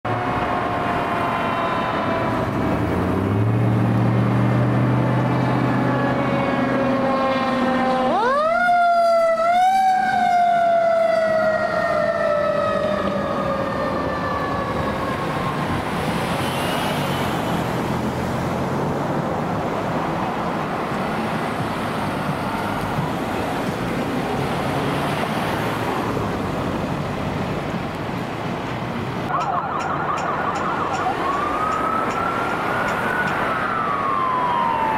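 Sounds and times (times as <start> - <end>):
road and engine noise: 0.0 - 34.9
wavering ambulance siren: 0.1 - 3.9, 4.7 - 18.5, 29.3 - 34.9
fire engine siren wailing: 0.1 - 26.9, 29.2 - 34.9.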